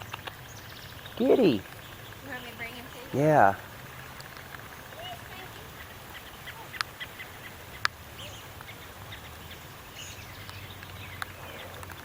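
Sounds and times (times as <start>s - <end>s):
sharp clicks: 0.0s - 1.9s
songbird alarm calls and chirps: 0.0s - 12.0s.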